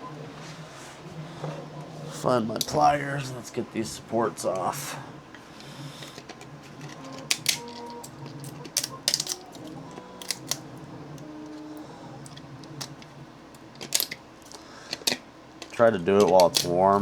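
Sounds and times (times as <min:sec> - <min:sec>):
pliers snapping plastic: 0:06.0 - 0:17.0.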